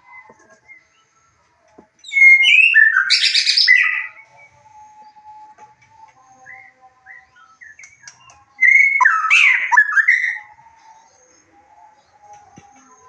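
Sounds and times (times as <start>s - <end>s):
bird whistled phrase: 6.5s - 10.6s.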